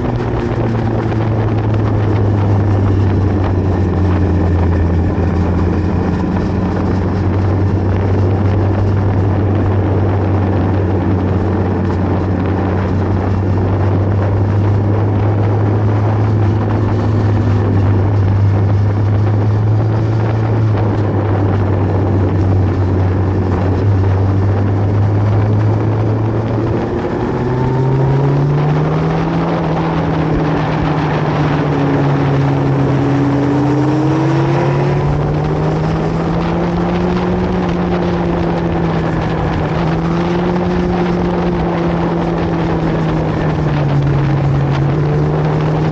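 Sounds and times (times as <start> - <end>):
motorcycle engine accelerating: 0.0 - 45.9
wind noise: 0.0 - 45.9.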